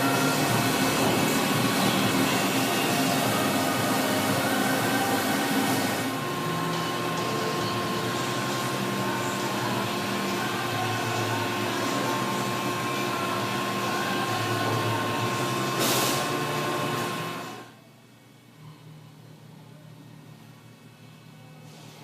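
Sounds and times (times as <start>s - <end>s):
lathe machine running: 0.0s - 17.7s.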